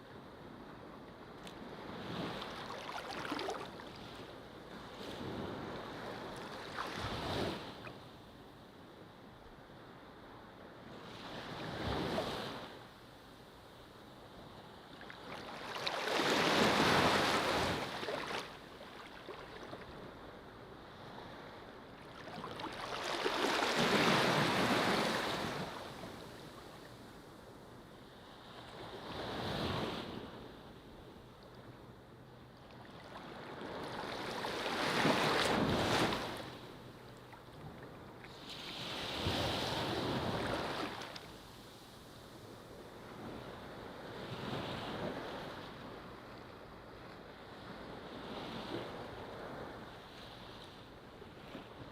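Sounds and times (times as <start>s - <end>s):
ocean waves breaking on beach: 1.6s - 7.8s, 15.1s - 20.2s, 20.9s - 27.1s, 32.8s - 37.0s, 38.0s - 41.8s.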